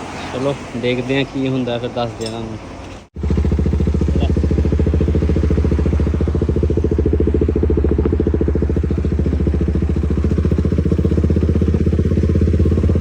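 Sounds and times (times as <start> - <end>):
motorcycle engine running: 3.1 - 13.0.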